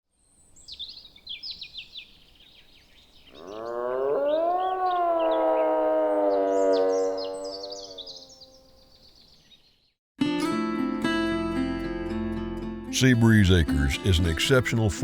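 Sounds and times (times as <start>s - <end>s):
birds chirping: 0.5s - 10.0s
sustained musical note: 13.0s - 15.0s.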